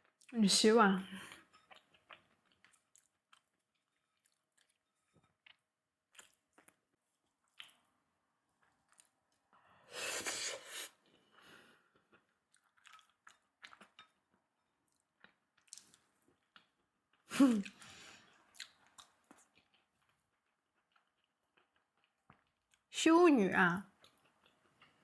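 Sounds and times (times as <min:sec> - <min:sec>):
person chewing: 0:01.3 - 0:09.5, 0:11.8 - 0:22.9.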